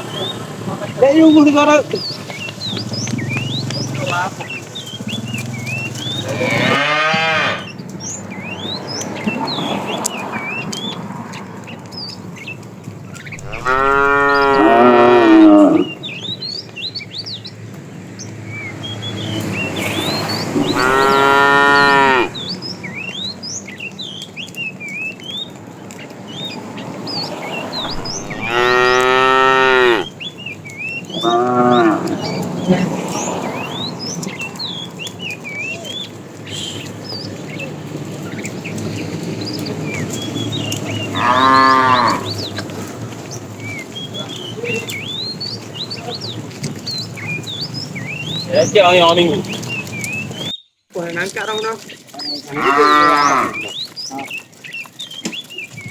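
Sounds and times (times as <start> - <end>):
birds chirping: 0.0 - 55.9
cattle mooing: 6.2 - 7.7, 13.4 - 16.0, 20.5 - 22.4, 27.8 - 30.1, 31.2 - 33.6, 41.1 - 42.4, 52.5 - 53.7.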